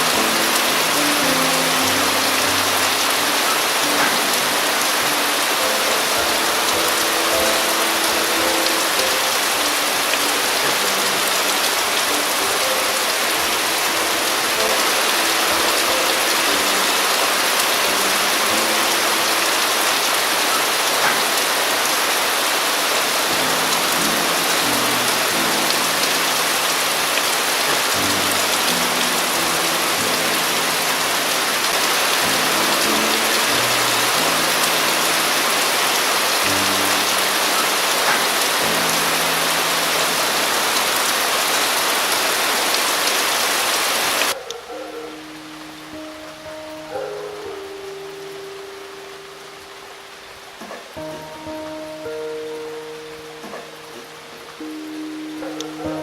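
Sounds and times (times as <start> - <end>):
heavy rain pattering: 0.0 - 56.0.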